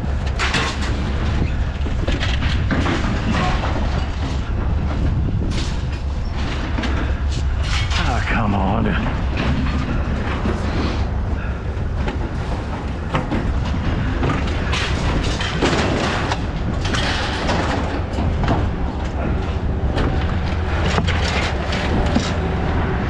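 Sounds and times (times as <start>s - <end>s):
loose rattles and clanks: 0.0s - 8.1s, 9.1s - 22.9s
vehicle engine rumbling: 0.0s - 23.0s.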